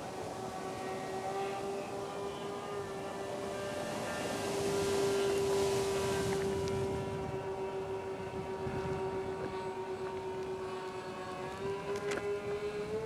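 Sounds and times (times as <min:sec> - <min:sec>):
model airplane droning: 0:00.0 - 0:13.0
wind on microphone: 0:03.3 - 0:13.0.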